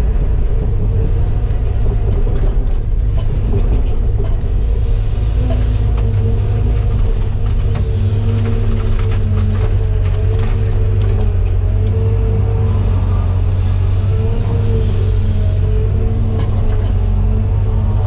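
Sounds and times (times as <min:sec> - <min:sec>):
excavator diesel engine running: 0:00.0 - 0:18.0
sharp clicks and knocks: 0:01.6 - 0:04.7.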